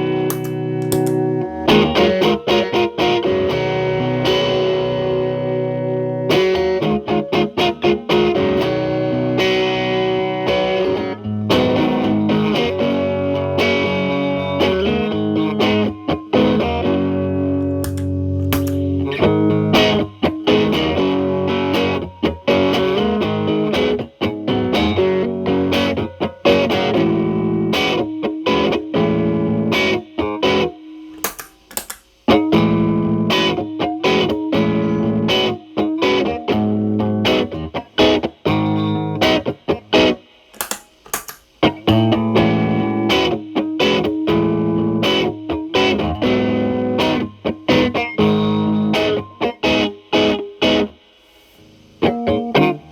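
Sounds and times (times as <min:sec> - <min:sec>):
distorted electric guitar riffs: 0:00.0 - 0:27.8, 0:52.0 - 0:52.9.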